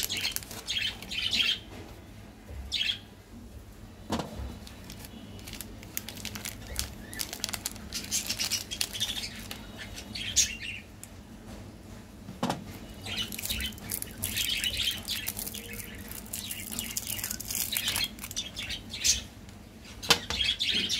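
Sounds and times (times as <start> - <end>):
crackling sweet wrappers and snacks: 0.0 - 1.6, 4.5 - 10.6, 13.0 - 19.2.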